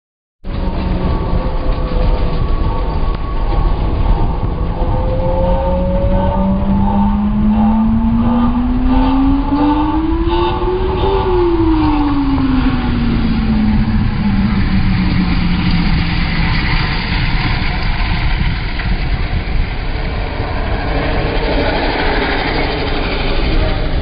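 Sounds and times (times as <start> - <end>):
road noise rumble: 0.4 - 24.0
vehicle engine winding down: 0.5 - 17.2.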